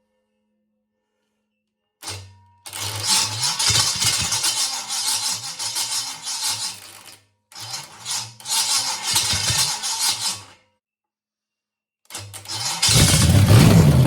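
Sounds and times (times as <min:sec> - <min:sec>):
starter motor cranking: 0:02.7 - 0:10.5, 0:12.4 - 0:14.0
engine running loud and uneven: 0:12.8 - 0:14.0.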